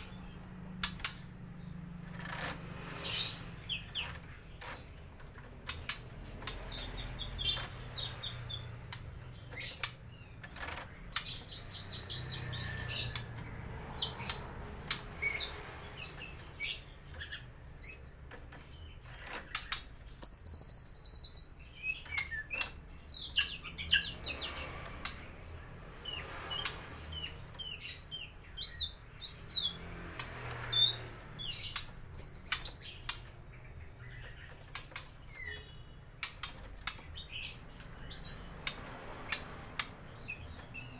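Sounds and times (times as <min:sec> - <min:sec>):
bird singing whistles and chirps: 0:18.8 - 0:24.7, 0:26.0 - 0:29.8, 0:34.0 - 0:40.9.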